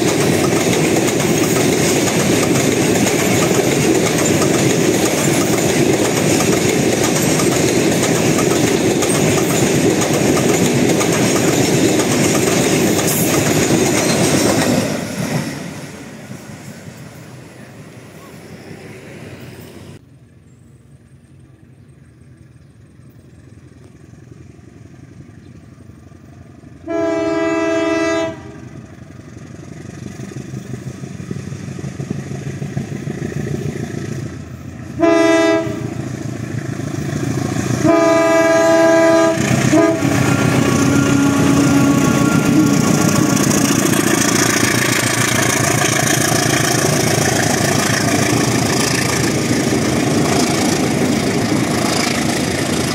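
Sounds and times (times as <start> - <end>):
train wheels rumbling on rails: 0.0 - 20.0, 21.0 - 52.9
train horn blasts: 26.8 - 28.8, 35.0 - 36.0, 37.8 - 43.6.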